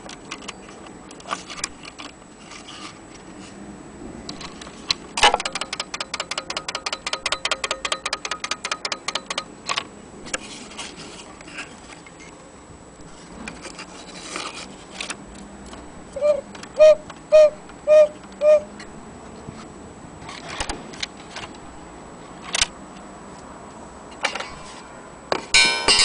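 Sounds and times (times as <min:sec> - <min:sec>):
cuckoo clock clicks and ticks: 0:05.4 - 0:09.5.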